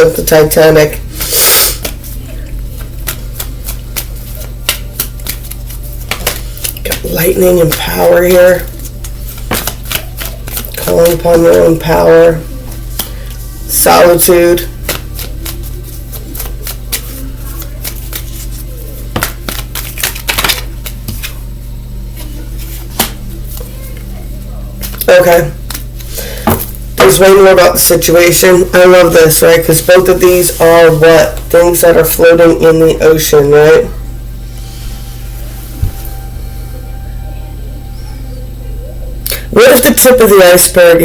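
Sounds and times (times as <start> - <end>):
steady low hum: 0.0 - 41.0
cards rustling: 1.2 - 13.4, 14.8 - 21.4
cards clicking on table: 2.8 - 7.1, 8.8 - 10.9, 19.1 - 21.3.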